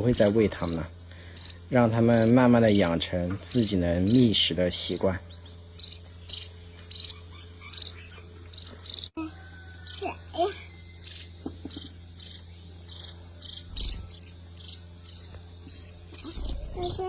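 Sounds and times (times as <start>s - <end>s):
insect gliding calls: 0.0s - 17.0s
insects chirping: 0.0s - 17.0s.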